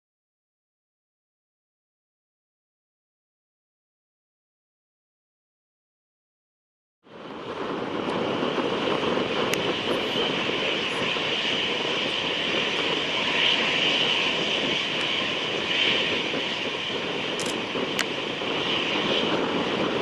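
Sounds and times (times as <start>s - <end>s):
jet engines at takeoff power: 7.0s - 20.0s.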